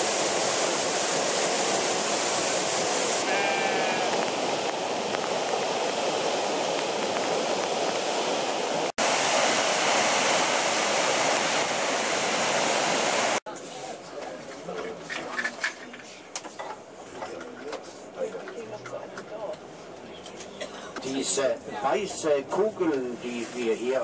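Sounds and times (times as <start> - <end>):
waterfall roaring: 0.0 - 13.4.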